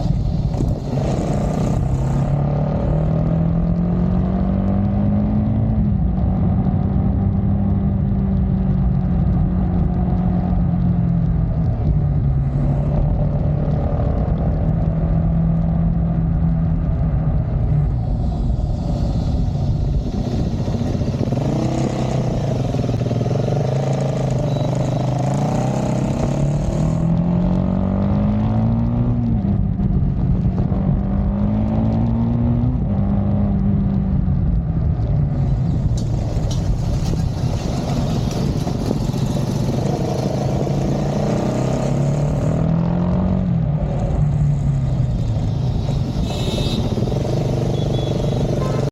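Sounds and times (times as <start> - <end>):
motorcycle engine accelerating: 0.0 - 48.9
wind rushing over microphone: 0.0 - 48.9.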